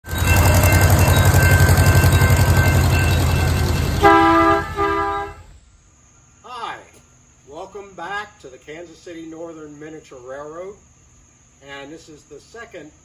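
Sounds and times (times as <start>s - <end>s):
train horn blasts: 0.0s - 5.6s
train rhythmic rumble: 0.0s - 5.6s.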